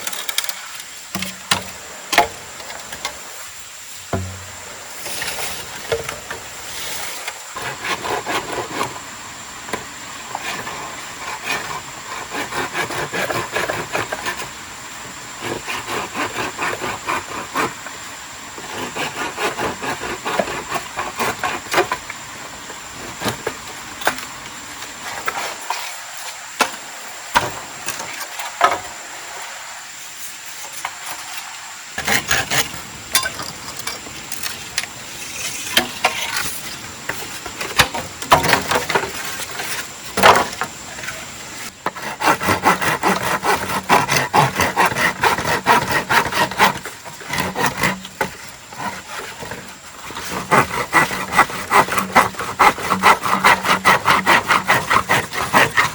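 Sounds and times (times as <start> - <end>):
scraping and crackling strokes: 4.2 - 9.0, 30.2 - 55.9.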